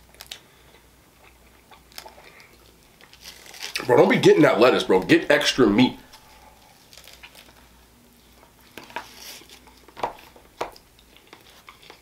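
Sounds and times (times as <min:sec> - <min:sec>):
person quietly chewing: 0:00.0 - 0:03.2, 0:10.7 - 0:12.0.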